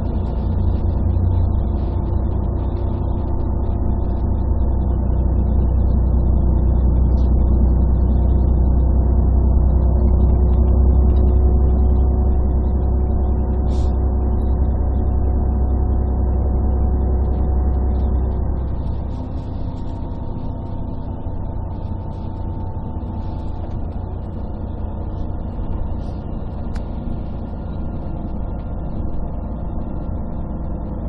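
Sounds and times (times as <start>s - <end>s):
bus diesel engine droning: 0.0s - 31.0s.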